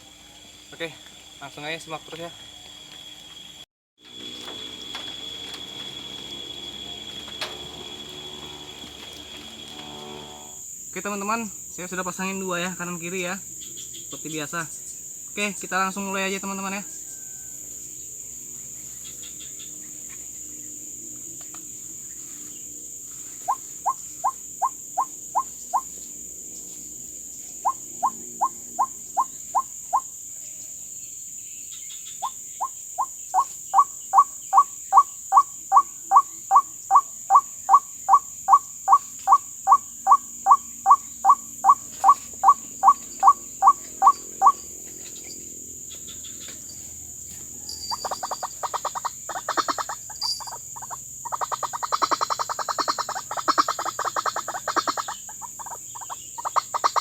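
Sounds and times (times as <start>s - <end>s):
high insect chorus: 0.0s - 57.0s
waterhen calling: 23.4s - 25.9s, 32.2s - 44.6s, 47.9s - 57.0s.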